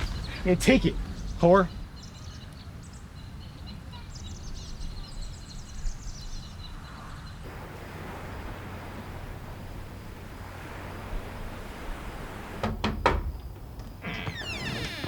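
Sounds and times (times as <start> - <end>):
steady background rumble: 0.0 - 3.0, 7.5 - 14.0
birds chirping rapidly: 0.0 - 12.6
steady hiss: 7.4 - 15.0.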